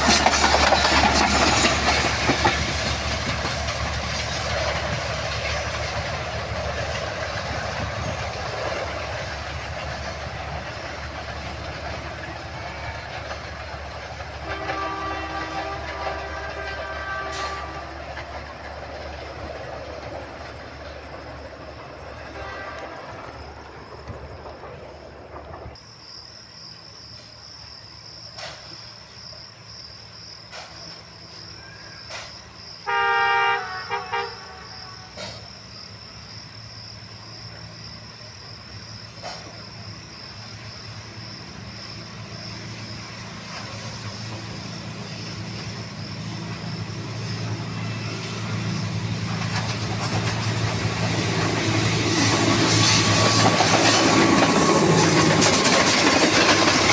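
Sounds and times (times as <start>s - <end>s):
diesel locomotive engine drone: 0.0s - 56.9s
locomotive horn: 14.4s - 18.0s, 22.3s - 23.2s, 32.8s - 35.4s.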